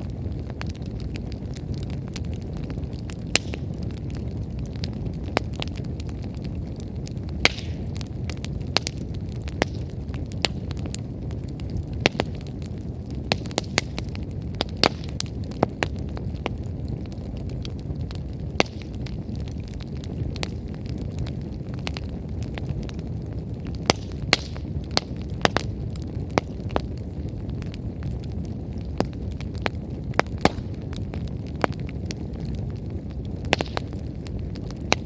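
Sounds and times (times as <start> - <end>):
bonfire crackling and popping: 0.0 - 35.0
low fire rumble: 0.0 - 35.0.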